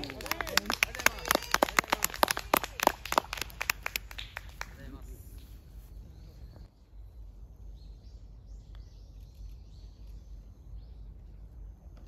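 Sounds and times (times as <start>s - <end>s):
small birds chirping: 4.0s - 12.0s.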